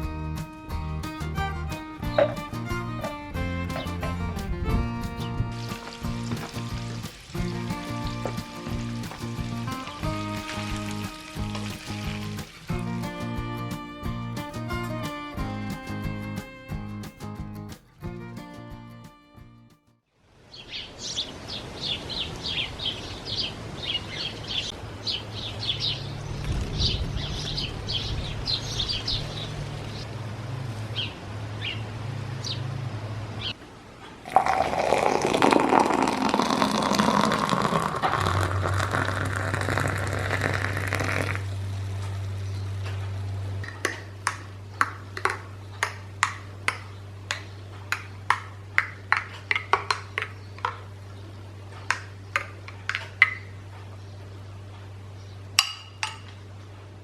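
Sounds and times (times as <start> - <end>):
small birds chirping: 0.0 - 18.6, 20.5 - 30.2, 30.9 - 33.6, 43.6 - 56.0
steady low hum: 0.0 - 19.6, 37.2 - 57.0.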